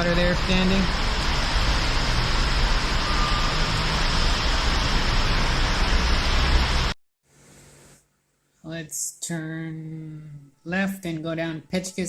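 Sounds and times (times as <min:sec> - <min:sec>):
heavy rain pouring: 0:00.0 - 0:07.0.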